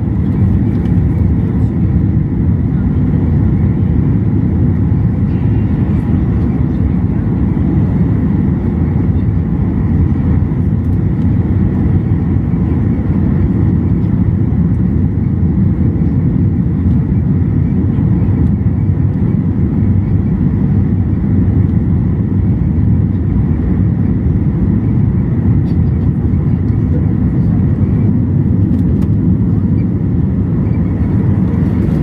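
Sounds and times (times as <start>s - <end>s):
airliner engines roaring: 0.0s - 32.0s.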